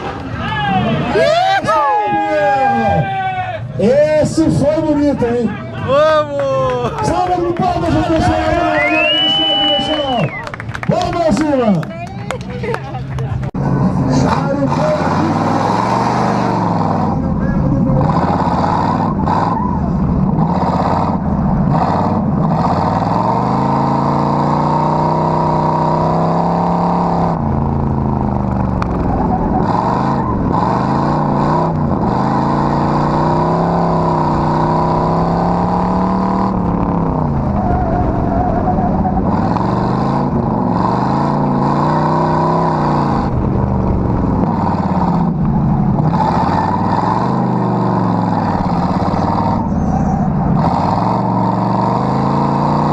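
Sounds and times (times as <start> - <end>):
car engine revving: 0.0 - 52.9
steady rushing noise: 27.3 - 51.4.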